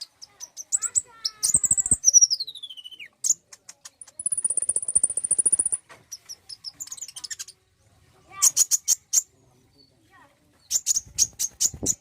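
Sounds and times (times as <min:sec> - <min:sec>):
bird song whistle and trill: 0:00.0 - 0:03.4, 0:04.0 - 0:07.6
bird chips: 0:00.0 - 0:07.6, 0:10.6 - 0:12.0.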